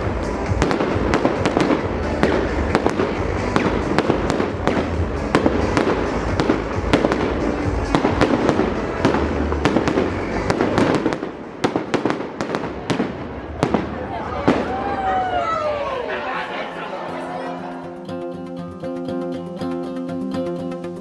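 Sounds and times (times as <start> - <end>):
fireworks bangs and crackles: 0.0 - 15.4.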